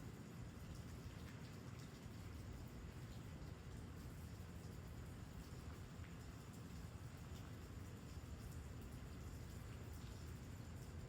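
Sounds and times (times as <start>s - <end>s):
faint rain falling: 0.0s - 11.0s.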